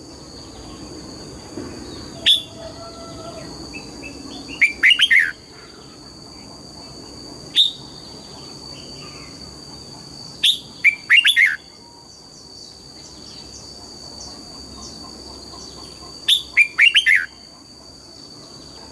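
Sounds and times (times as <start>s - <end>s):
steady high-pitched whine: 0.0s - 18.9s
bird whistling song: 2.1s - 5.4s, 7.5s - 7.9s, 10.4s - 12.0s, 16.2s - 17.5s.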